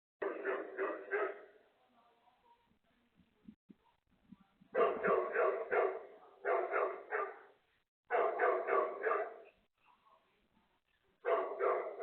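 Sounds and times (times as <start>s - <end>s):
dog barking: 0.2s - 1.6s, 4.7s - 9.6s, 11.2s - 12.0s.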